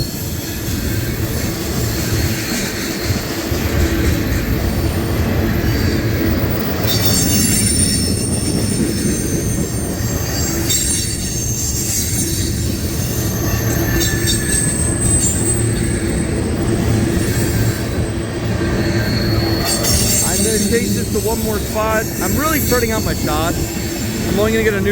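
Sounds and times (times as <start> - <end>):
freight train rumbling past: 0.0 - 24.9
wheel flange squeal: 5.5 - 21.2.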